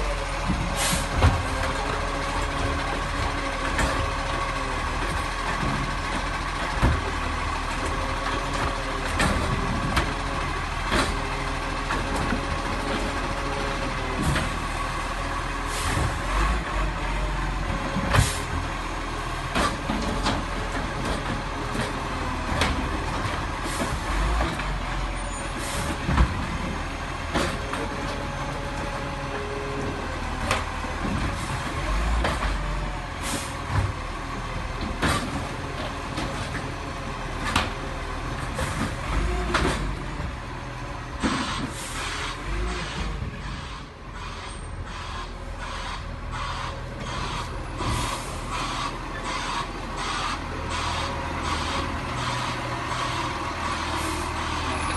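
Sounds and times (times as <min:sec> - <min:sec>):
garbage truck engine running: 0:00.0 - 0:54.9
knocks and clanks: 0:05.0 - 0:10.2, 0:38.4 - 0:40.3.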